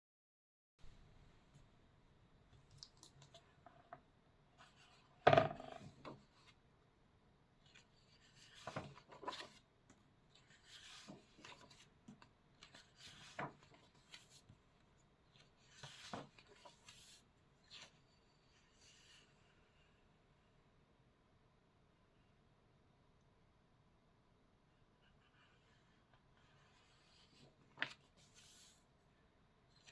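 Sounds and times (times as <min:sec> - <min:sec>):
paper rustling: 0:26.6 - 0:28.8.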